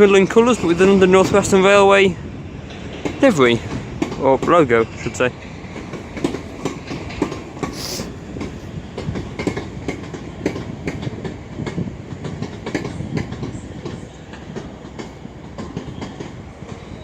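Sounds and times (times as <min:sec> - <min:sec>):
train wheels clattering over rails: 0:00.5 - 0:07.6, 0:08.4 - 0:17.0.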